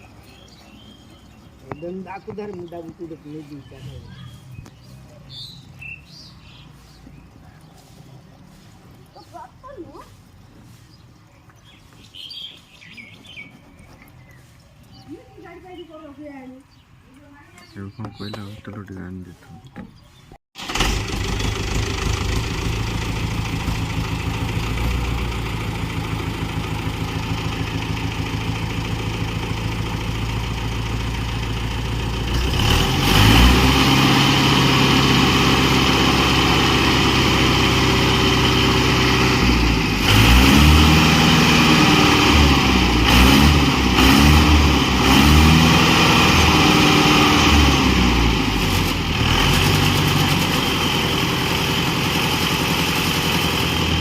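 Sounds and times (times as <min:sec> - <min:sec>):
tractor diesel engine revving: 0:20.6 - 0:54.0.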